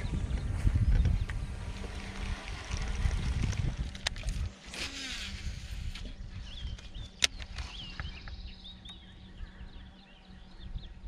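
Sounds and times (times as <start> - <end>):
low rumble: 0.0 - 11.0
small birds chirping: 5.9 - 11.0.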